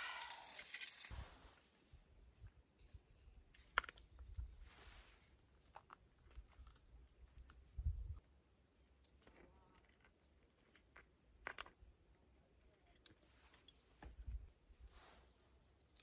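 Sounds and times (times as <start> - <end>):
small objects clicking and tapping: 9.0 - 11.8.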